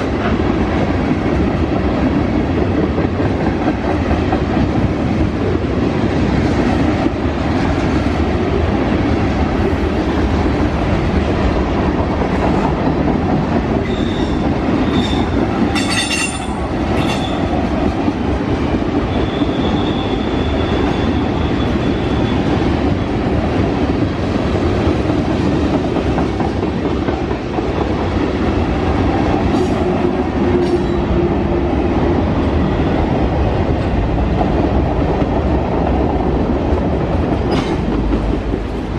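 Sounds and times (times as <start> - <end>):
freight train rumbling past: 0.0 - 38.9
sharp metal clanks: 15.7 - 17.4
wheel squeals: 19.1 - 22.5.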